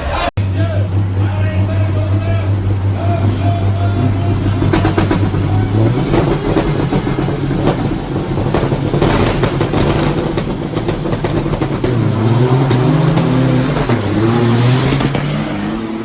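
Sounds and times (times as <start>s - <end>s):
sharp knocks and rattles: 0.4s - 15.4s
diesel engine running hard: 0.4s - 16.0s.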